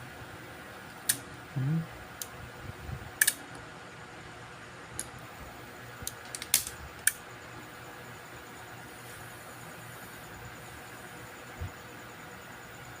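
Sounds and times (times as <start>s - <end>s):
steady low hum: 0.0s - 13.0s
multimeter probes clicking: 3.2s - 3.4s, 6.0s - 7.2s.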